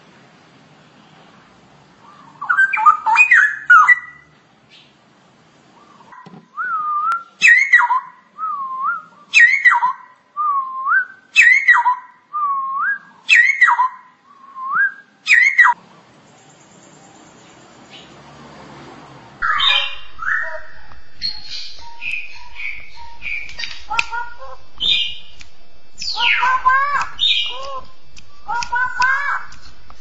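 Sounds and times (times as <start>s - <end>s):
bulbul whistling song: 2.0s - 4.9s, 5.8s - 18.1s, 19.4s - 30.0s
loud bird call: 19.4s - 30.0s.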